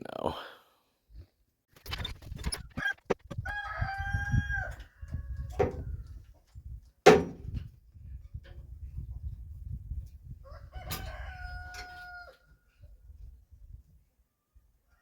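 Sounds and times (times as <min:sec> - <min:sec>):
rooster crowing: 0:03.4 - 0:05.5, 0:10.4 - 0:12.6
loud sharp knock: 0:07.1 - 0:07.4.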